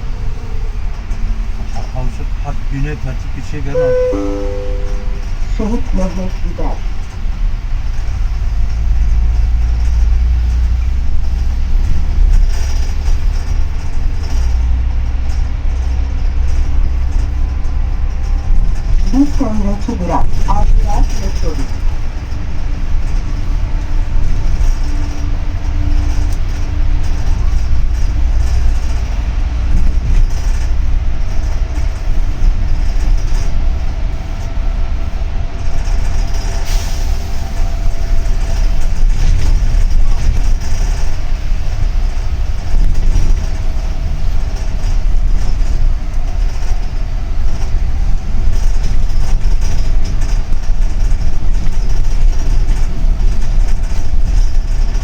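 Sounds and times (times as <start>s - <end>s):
bus engine and road rumble: 0.0s - 55.0s
faint whine: 3.6s - 6.4s
short sharp sound: 3.7s - 5.4s.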